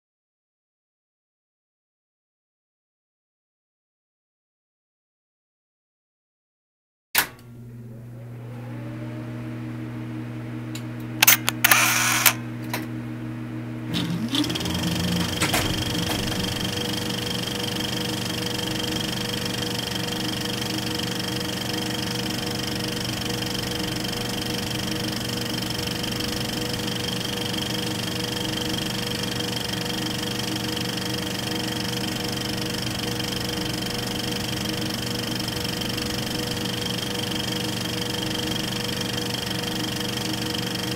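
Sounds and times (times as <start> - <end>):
film projector running: 10.7 - 12.5, 13.7 - 40.9
sharp clicks: 11.2 - 12.4.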